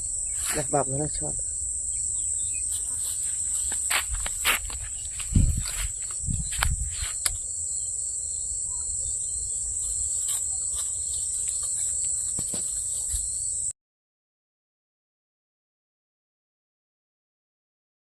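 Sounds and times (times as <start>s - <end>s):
insects chirring: 0.0s - 13.7s.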